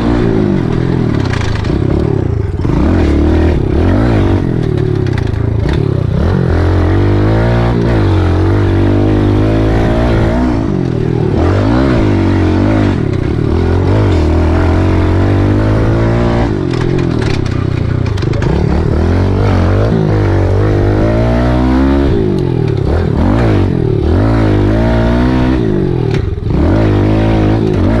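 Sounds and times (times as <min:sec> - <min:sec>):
small motorbike engine revving: 0:00.0 - 0:28.0.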